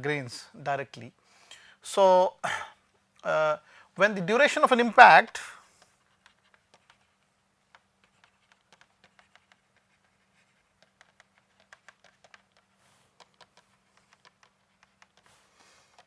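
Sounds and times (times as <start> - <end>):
faint steady hum: 0.0 - 16.0
pen scratching while writing: 5.8 - 16.0.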